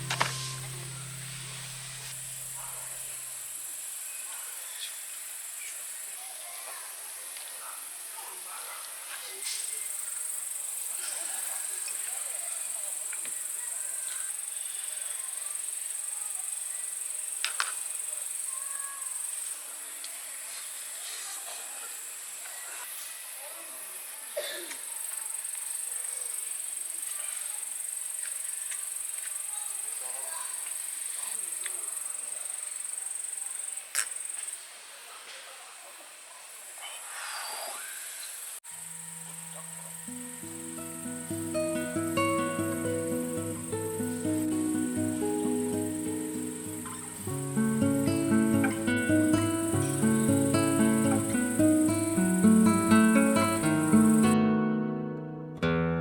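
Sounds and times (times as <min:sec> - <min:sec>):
sharp click: 0:00.0 - 0:00.5
music with held low notes: 0:00.0 - 0:03.5, 0:39.0 - 0:55.7
insects chorus: 0:00.0 - 0:35.2, 0:36.0 - 0:54.4.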